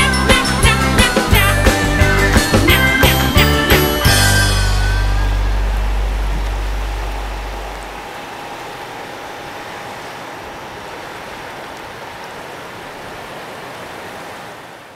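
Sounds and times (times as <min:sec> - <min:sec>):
background music: 0:00.0 - 0:08.0
river water rushing: 0:00.0 - 0:14.9.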